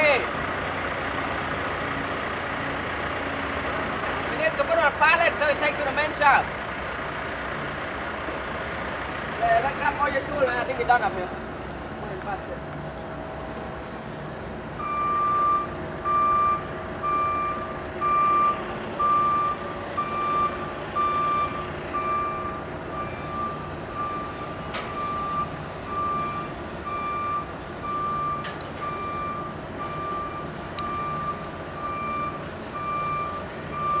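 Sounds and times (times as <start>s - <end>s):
motion alarm beeping: 14.8s - 34.0s.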